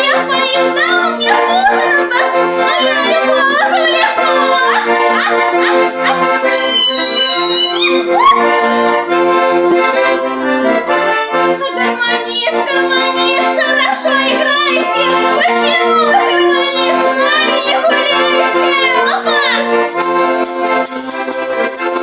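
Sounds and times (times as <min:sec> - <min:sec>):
accordion playing folk song: 0:00.0 - 0:22.0
person singing: 0:04.1 - 0:08.6.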